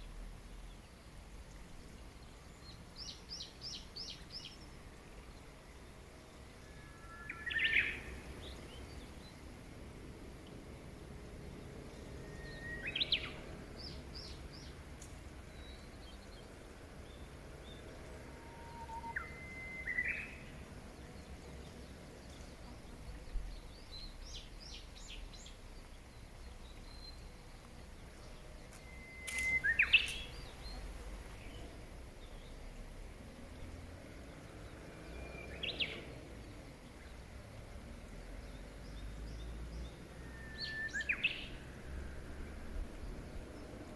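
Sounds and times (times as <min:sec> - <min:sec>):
background hiss: 0:00.0 - 0:43.9
faint high bird chirps: 0:06.6 - 0:09.0, 0:12.0 - 0:14.7, 0:17.1 - 0:20.6, 0:28.6 - 0:31.7
bird whistling phrase: 0:18.4 - 0:20.4.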